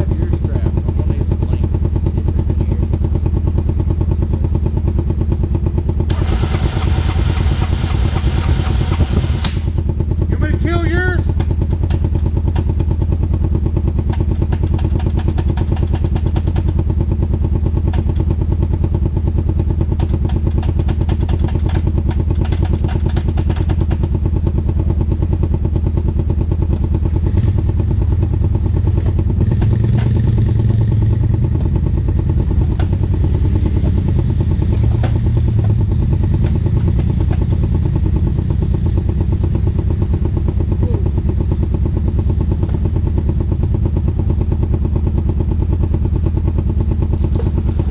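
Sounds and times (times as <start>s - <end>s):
off-road vehicle engine running: 0.0s - 47.9s.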